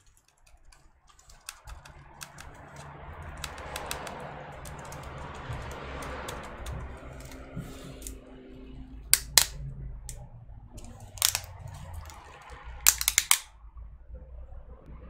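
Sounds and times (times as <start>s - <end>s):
laptop keyboard key clicks: 0.0s - 8.1s, 9.2s - 9.6s, 10.8s - 12.2s, 12.8s - 13.5s.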